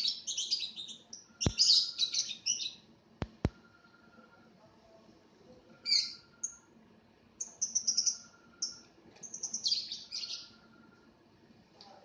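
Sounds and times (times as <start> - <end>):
lovebird chirping: 0.0 - 2.9, 5.8 - 6.7, 7.4 - 10.7.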